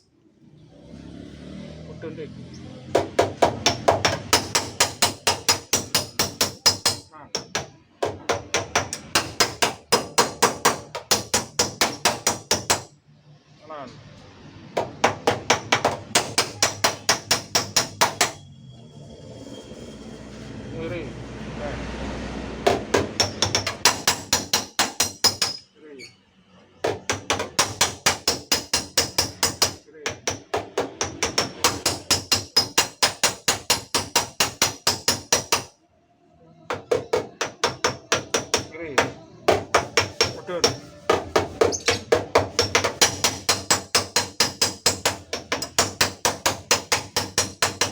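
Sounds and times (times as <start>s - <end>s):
hammer tapping on sheet metal: 3.0s - 12.9s, 14.8s - 18.4s, 22.7s - 25.6s, 26.8s - 35.7s, 36.7s - 47.9s.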